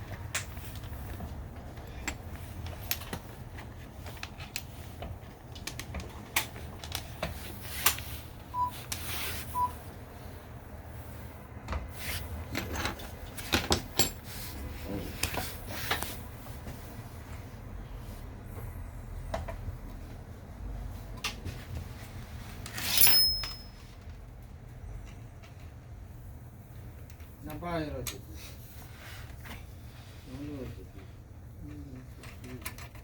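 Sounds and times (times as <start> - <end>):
short beeps: 8.6 - 8.8, 9.5 - 9.8
metal tools clanking: 22.8 - 23.9.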